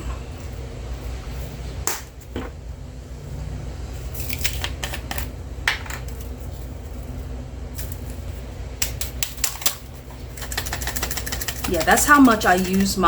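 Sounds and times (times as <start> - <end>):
steady low hum: 0.0 - 13.0
containers clicking and tapping: 9.2 - 13.0.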